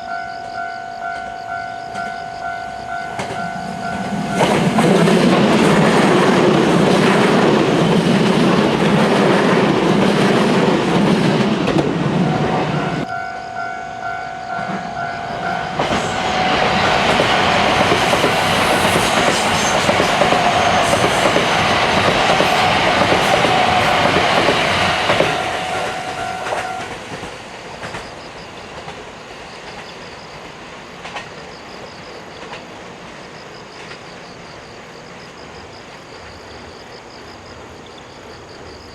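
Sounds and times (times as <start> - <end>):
steady pitched tone: 0.0 - 5.2, 12.2 - 17.8
train wheels clattering over rail joints: 15.4 - 31.6.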